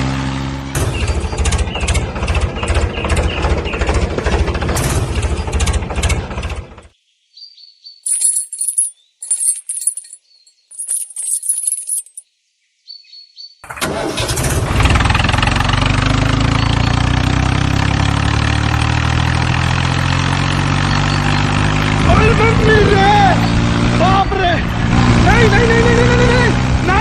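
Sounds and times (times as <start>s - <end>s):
tractor engine rumbling: 0.0s - 6.9s, 13.7s - 27.0s.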